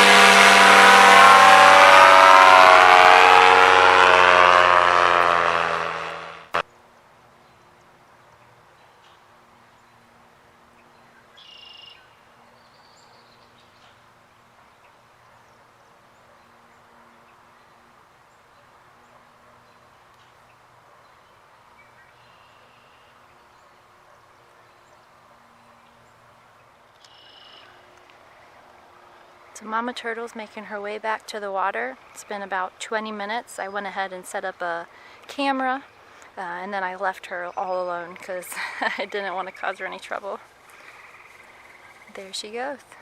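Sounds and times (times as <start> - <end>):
bird calling: 11.3 - 14.0, 26.9 - 28.6, 38.8 - 42.4.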